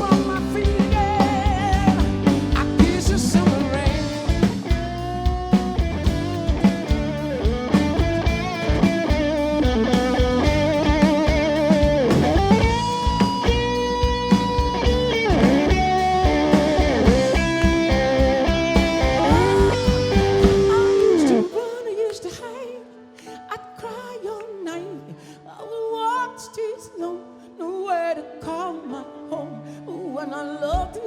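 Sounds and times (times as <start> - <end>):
bass guitar: 0.0 - 21.5
drums: 0.0 - 21.8
electric guitar solo: 7.3 - 21.6.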